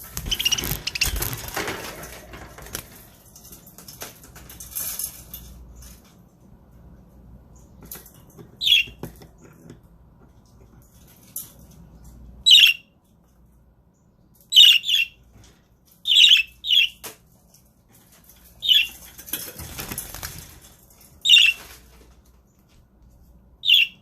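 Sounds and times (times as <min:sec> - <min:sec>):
wings fluttering: 0:00.0 - 0:06.0, 0:18.2 - 0:22.3
budgerigars chirping: 0:00.2 - 0:01.3, 0:08.6 - 0:09.0, 0:12.5 - 0:12.8, 0:14.5 - 0:15.2, 0:16.1 - 0:17.0, 0:18.6 - 0:19.0, 0:21.3 - 0:21.6, 0:23.6 - 0:24.0.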